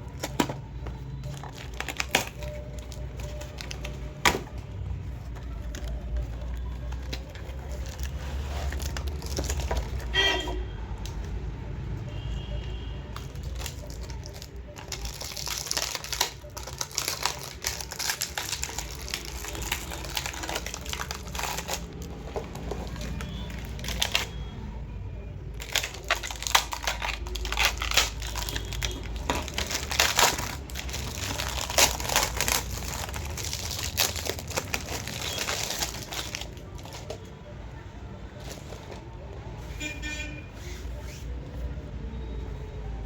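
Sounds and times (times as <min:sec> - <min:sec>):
packaging crinkling and rustling: 0:00.0 - 0:10.5, 0:13.1 - 0:24.5, 0:25.5 - 0:37.3.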